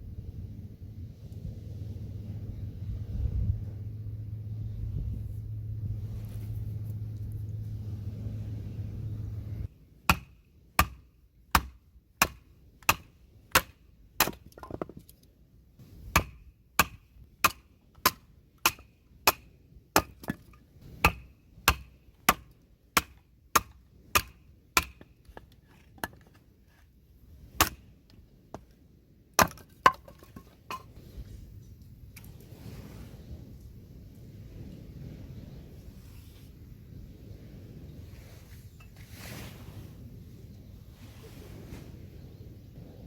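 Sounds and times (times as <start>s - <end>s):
chopping strikes: 10.1s - 14.4s, 16.1s - 19.4s.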